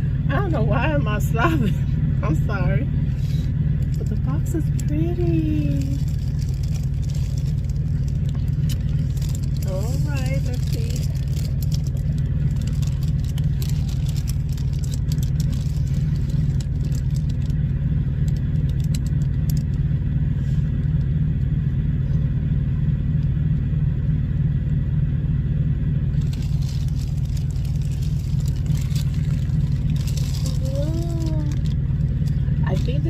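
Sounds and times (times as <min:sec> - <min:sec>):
low engine rumble: 0:00.0 - 0:33.0
packaging crackling: 0:05.6 - 0:17.6, 0:26.2 - 0:33.0.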